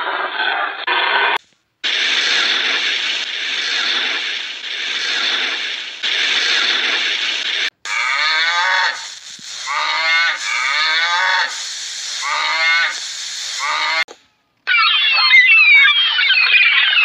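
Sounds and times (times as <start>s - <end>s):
short hiss: 1.4s - 14.2s
cattle mooing: 7.9s - 9.0s.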